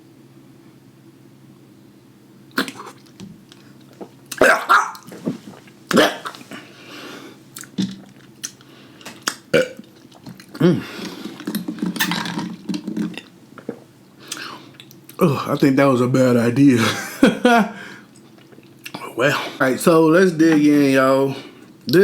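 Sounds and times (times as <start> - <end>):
mouth smacking while eating: 2.5 - 6.7, 7.5 - 15.2, 18.1 - 19.0
man burping: 4.3 - 5.0, 5.9 - 6.5, 9.5 - 9.9, 10.6 - 11.0.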